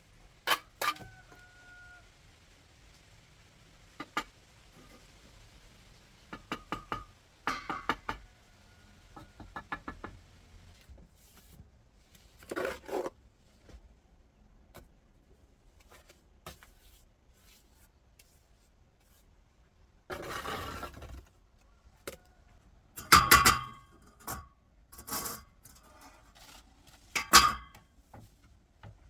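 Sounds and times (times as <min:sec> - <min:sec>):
light sharp knocks and taps: 0:09.2 - 0:10.3.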